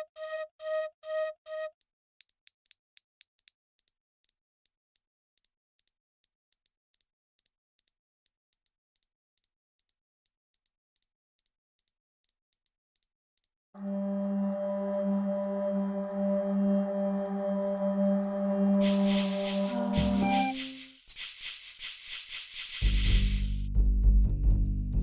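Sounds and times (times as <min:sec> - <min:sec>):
short high-pitched clicks: 0:17.6 - 0:23.6.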